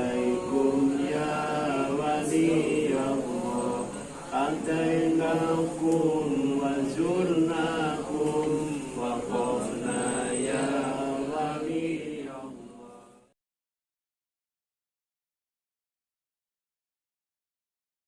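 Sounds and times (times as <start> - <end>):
group of voices chanting prayer: 0.0 - 13.4.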